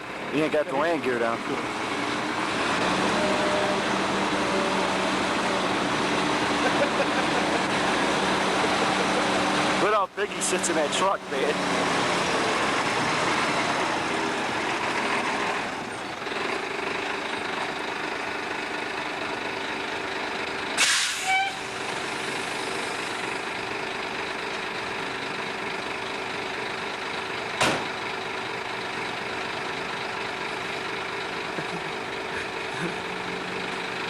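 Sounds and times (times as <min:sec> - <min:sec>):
diesel truck engine idling: 0:00.0 - 0:34.0
air brake hisses: 0:20.8 - 0:21.6.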